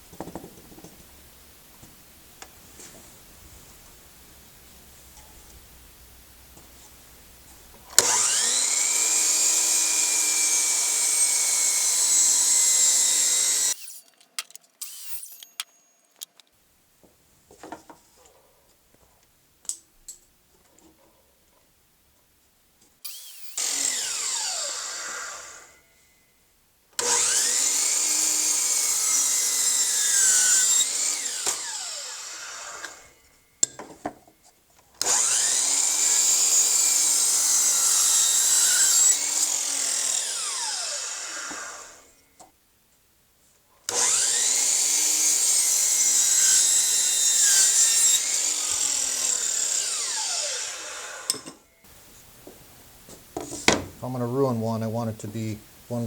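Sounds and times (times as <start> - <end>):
electric power saw cutting wood: 8.0 - 15.8, 23.1 - 25.8, 27.0 - 33.2, 35.0 - 42.2, 43.9 - 51.7
knocks and clicks of wood handling: 52.4 - 54.0.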